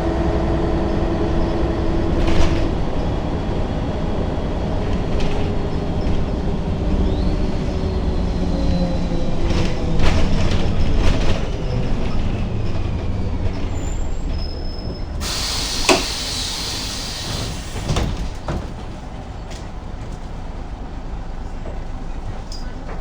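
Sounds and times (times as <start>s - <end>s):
bus engine rumbling: 0.0s - 23.0s
compressed air hiss: 15.2s - 18.0s.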